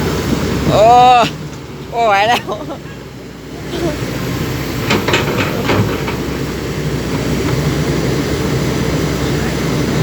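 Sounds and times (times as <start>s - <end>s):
backhoe engine rumbling: 0.0s - 10.0s
short clatters: 4.8s - 6.5s.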